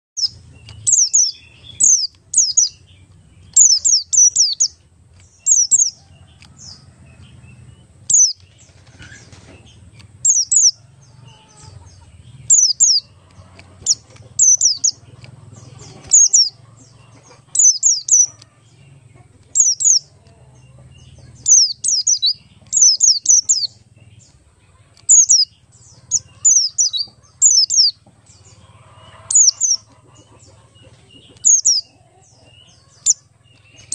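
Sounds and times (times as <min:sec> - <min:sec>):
bird high-pitched chirps: 0:00.2 - 0:33.9.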